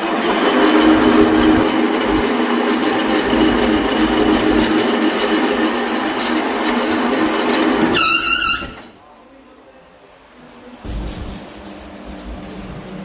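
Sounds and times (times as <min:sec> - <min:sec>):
metal lathe humming: 0:00.0 - 0:08.9.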